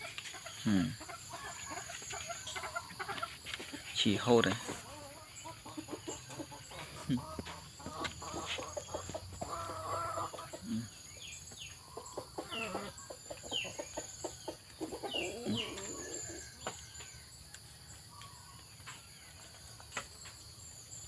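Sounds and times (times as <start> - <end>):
lower multi-tone animal calls: 14.8 - 16.7.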